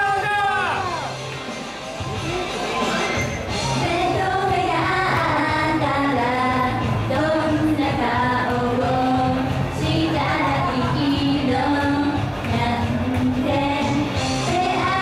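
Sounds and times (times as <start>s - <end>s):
band music with steady beat: 0.8s - 14.7s
women singing pop song live: 3.8s - 15.0s.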